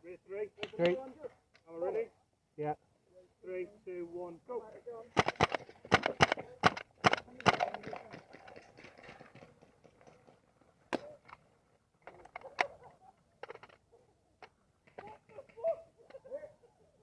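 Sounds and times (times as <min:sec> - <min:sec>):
airsoft gun shots: 0:05.2 - 0:07.8.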